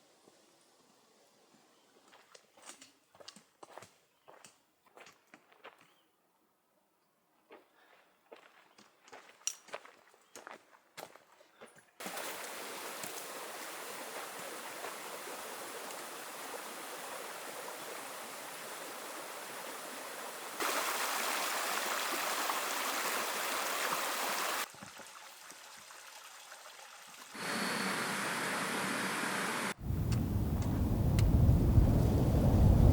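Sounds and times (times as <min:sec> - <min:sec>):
stream water rushing: 0:12.0 - 0:26.2, 0:27.3 - 0:30.0.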